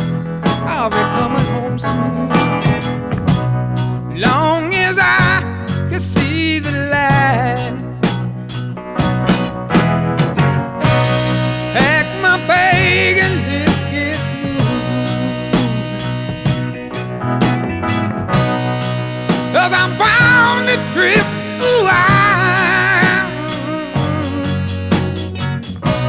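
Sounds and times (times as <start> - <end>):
person singing: 0.0 - 3.0, 4.2 - 8.1, 10.8 - 16.8, 18.8 - 25.4
bass: 0.0 - 26.0
drum beat: 9.0 - 26.0.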